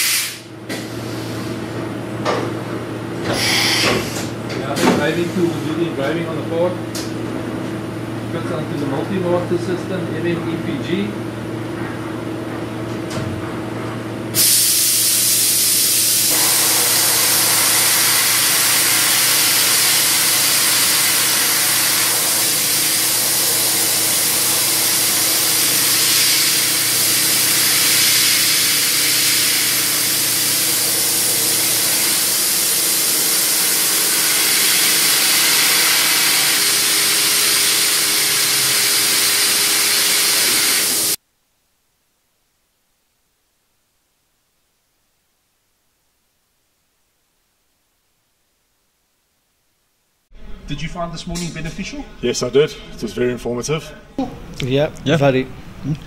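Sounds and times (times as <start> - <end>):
coolant spray hissing: 0.0 - 0.5, 14.4 - 41.2
machine spindle humming: 16.3 - 41.2.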